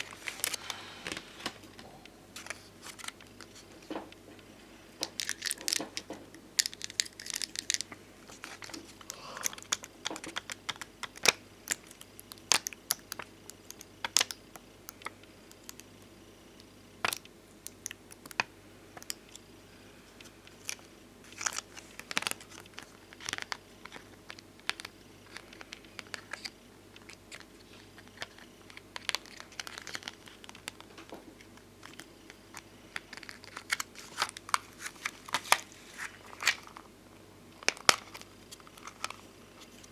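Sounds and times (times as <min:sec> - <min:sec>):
stickers crinkling and peeling: 0:00.0 - 0:04.4, 0:05.0 - 0:16.2, 0:20.2 - 0:36.9, 0:37.5 - 0:39.9
stickers tapping and clicking: 0:05.0 - 0:16.0.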